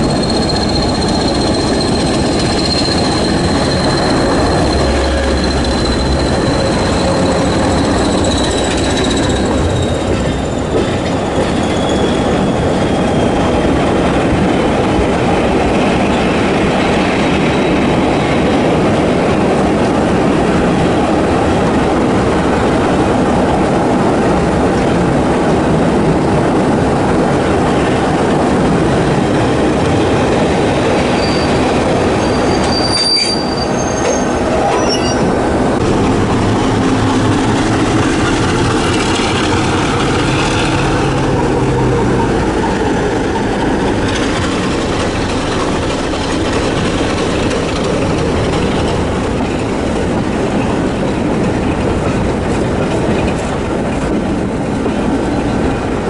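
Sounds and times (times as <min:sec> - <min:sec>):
high-pitched wheel squeals: 0:00.0 - 0:13.5, 0:31.0 - 0:35.6
train wheels rumbling on rails: 0:00.0 - 0:56.0.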